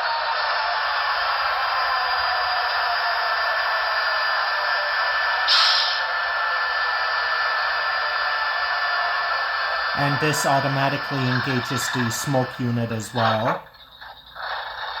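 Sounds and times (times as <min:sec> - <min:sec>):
short hiss: 0:05.5 - 0:06.0.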